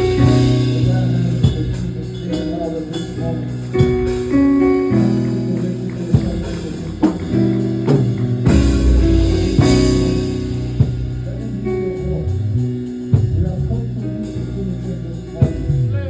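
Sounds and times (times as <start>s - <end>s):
bass notes: 0.0s - 16.0s
guitar: 0.0s - 16.0s
sharp drum hit: 6.2s - 11.5s.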